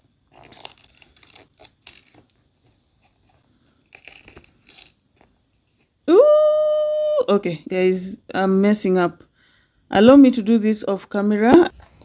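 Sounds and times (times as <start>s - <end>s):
paper tearing: 0.0s - 5.3s.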